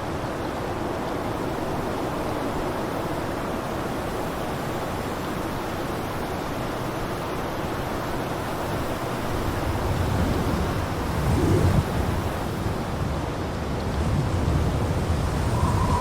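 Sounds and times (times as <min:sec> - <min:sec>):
blizzard wind blowing: 0:09.1 - 0:16.0.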